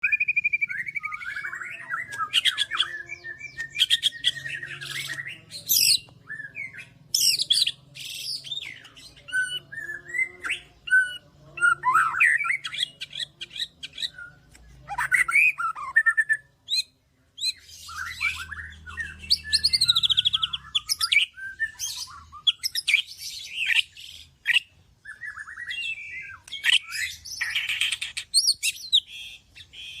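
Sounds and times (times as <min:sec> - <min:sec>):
songbird singing whistles and trills: 0:00.0 - 0:30.0.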